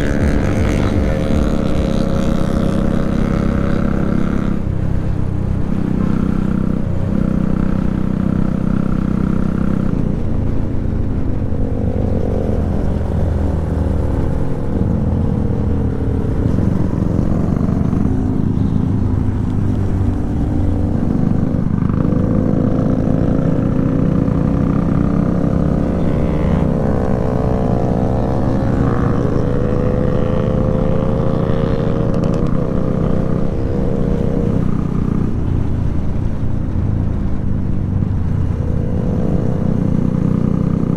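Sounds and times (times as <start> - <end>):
motorcycle engine accelerating: 0.0 - 40.9
wind and road noise: 0.0 - 40.9.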